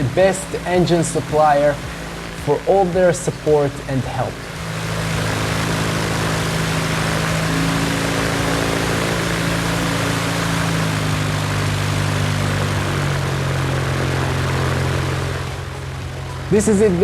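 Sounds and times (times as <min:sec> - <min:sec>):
aircraft engine running: 0:00.0 - 0:17.0.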